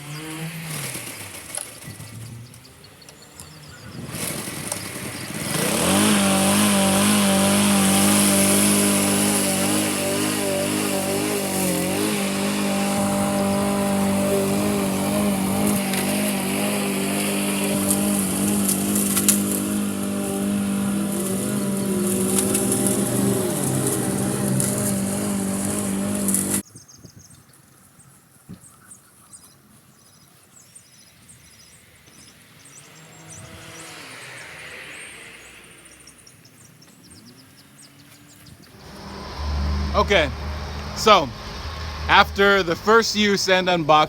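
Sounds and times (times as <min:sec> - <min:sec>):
lawnmower engine running: 0:00.0 - 0:02.2, 0:03.2 - 0:26.6, 0:38.8 - 0:44.0.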